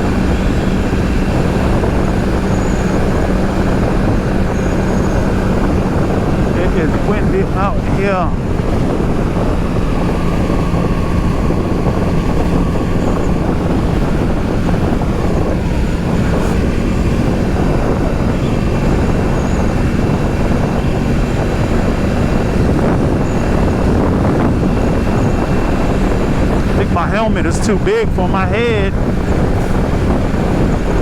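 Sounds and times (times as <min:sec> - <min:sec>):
motorcycle engine running: 0:00.0 - 0:31.0
wind buffeting microphone: 0:00.0 - 0:31.0.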